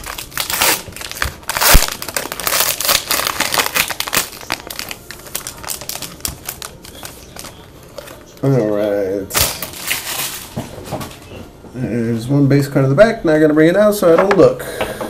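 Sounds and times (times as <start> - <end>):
plastic wrapper ripping and crinkling: 0.0 - 8.6, 9.3 - 10.6.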